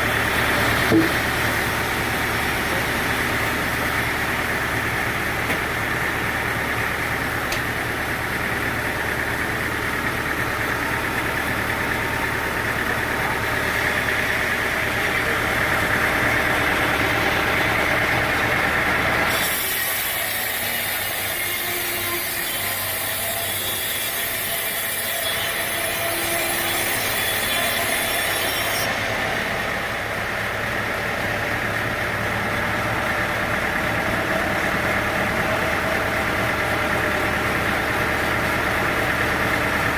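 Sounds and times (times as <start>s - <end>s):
deep engine rumble: 0.0s - 19.3s, 28.9s - 39.9s
sawmill machinery running: 0.0s - 39.9s.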